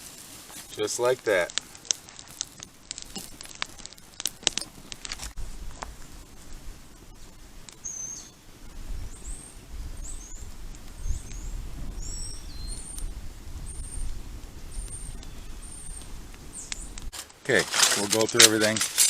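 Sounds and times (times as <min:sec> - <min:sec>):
songbird chirping: 0:07.8 - 0:08.4, 0:09.0 - 0:14.1, 0:14.7 - 0:17.1.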